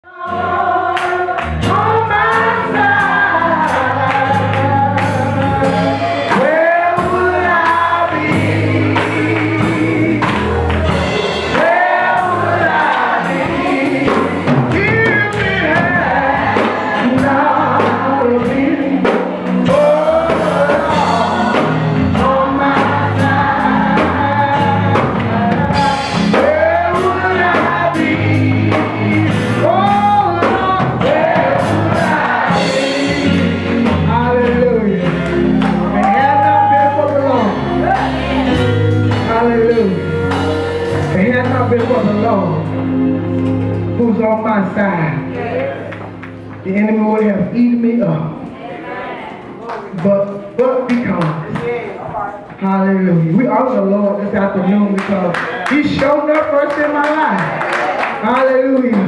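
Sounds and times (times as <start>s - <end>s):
bass line: 0.0s - 48.3s
gospel singing: 0.0s - 59.0s
drums with cymbals: 5.0s - 34.3s.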